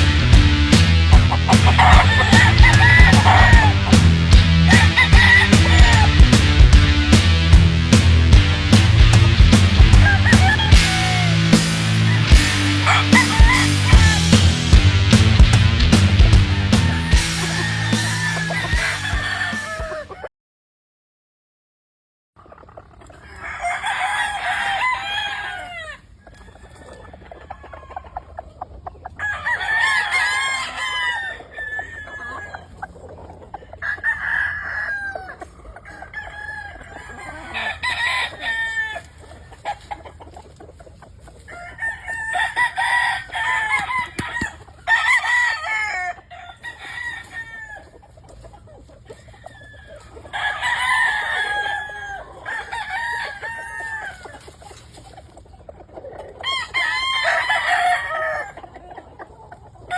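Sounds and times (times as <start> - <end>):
music: 0.0 - 20.2
roosters crowing: 0.0 - 20.3, 23.1 - 59.9
quiet fowl sounds: 1.2 - 4.0, 22.4 - 59.9.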